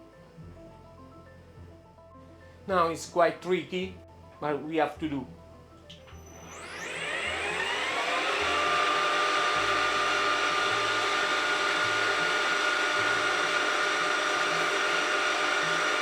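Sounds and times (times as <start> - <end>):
milling machine spindle whine: 6.0 - 16.0.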